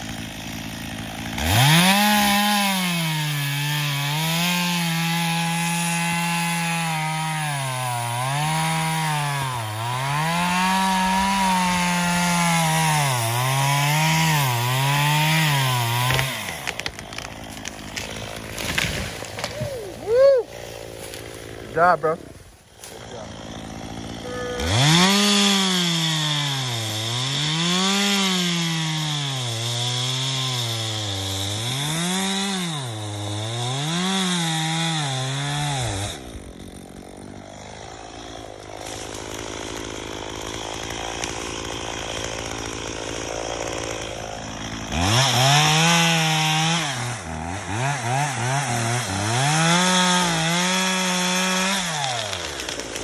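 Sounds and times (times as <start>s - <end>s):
chainsaw cutting into tree trunk: 0.0s - 53.0s.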